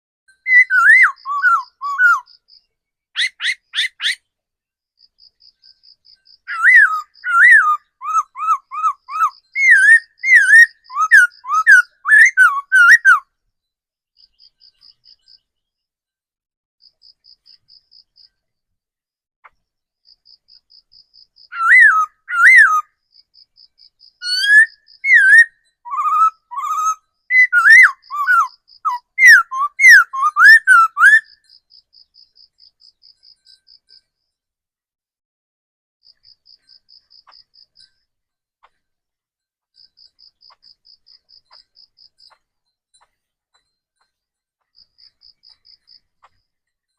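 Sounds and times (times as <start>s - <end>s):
bird singing whistled notes: 0.3s - 4.2s, 5.3s - 13.3s, 21.3s - 34.1s.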